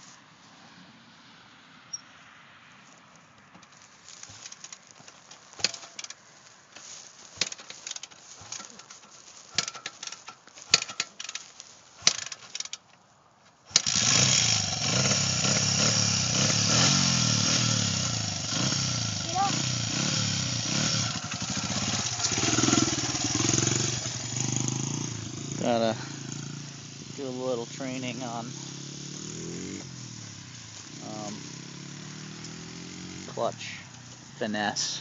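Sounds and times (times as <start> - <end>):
dirt bike engine running: 3.6 - 12.8, 13.7 - 35.0
mechanical clicks and clunks: 4.4 - 6.2, 7.4 - 11.4, 12.0 - 12.8.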